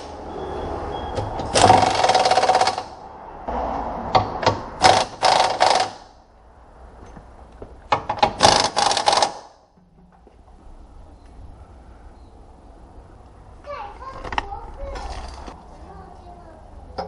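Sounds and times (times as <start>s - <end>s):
power tool rattling in bursts: 1.5s - 3.0s, 4.8s - 6.0s, 8.2s - 9.6s.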